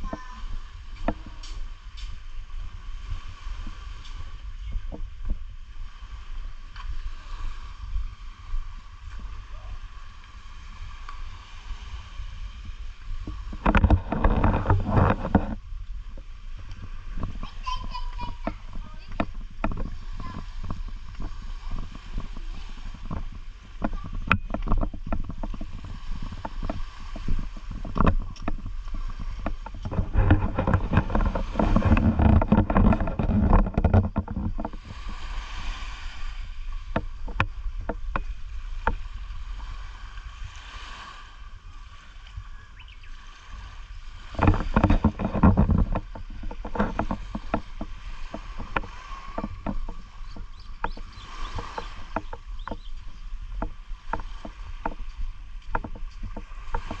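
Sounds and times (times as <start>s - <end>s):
low rumble of wind: 0.0s - 57.0s
sea water sloshing and splashing: 0.0s - 57.0s
small clicks and knocks: 13.5s - 15.6s, 23.0s - 34.8s, 44.4s - 57.0s.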